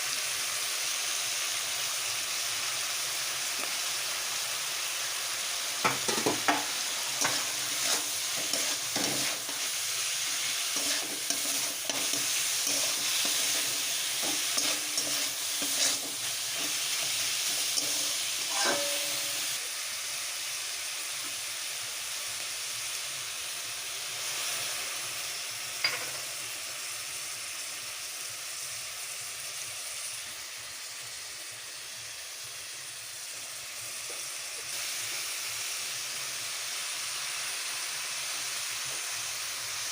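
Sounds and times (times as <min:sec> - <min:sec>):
food sizzling in hot oil: 0:00.0 - 0:39.9
utensil knocking and scraping pan: 0:05.8 - 0:09.7, 0:10.7 - 0:17.2, 0:17.8 - 0:19.4.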